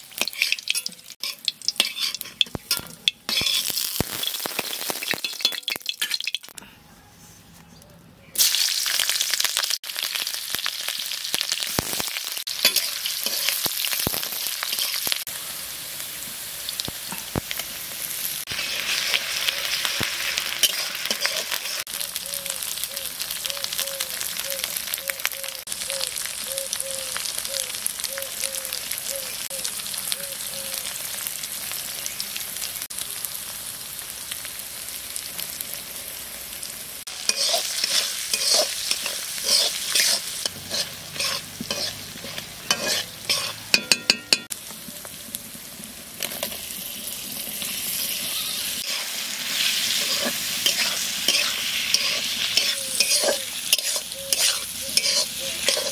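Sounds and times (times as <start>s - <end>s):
vegetables sizzling in hot oil: 0.0s - 6.6s, 8.4s - 55.9s
spatula stirring and scraping: 0.2s - 6.0s, 12.6s - 13.7s, 14.7s - 15.2s, 20.6s - 21.9s, 37.2s - 44.5s, 48.8s - 55.9s
metallic clinks of steel bowl: 42.7s - 44.5s.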